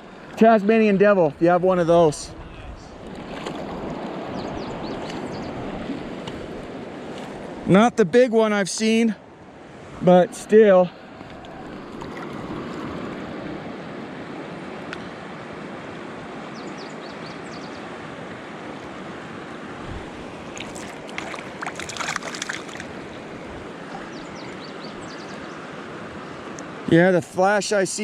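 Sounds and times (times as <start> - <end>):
creek water rushing: 2.9 - 28.0
sharp clicks and splashes: 20.5 - 23.0.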